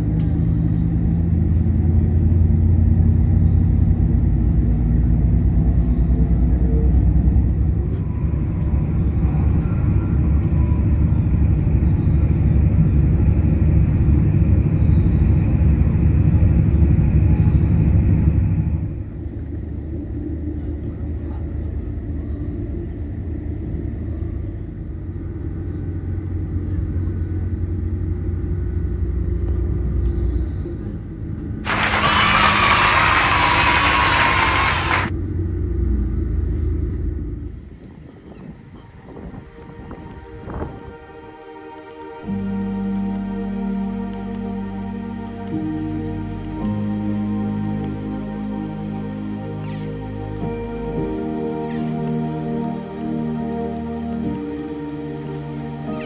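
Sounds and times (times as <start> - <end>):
vehicle interior rumble: 0.0 - 40.9.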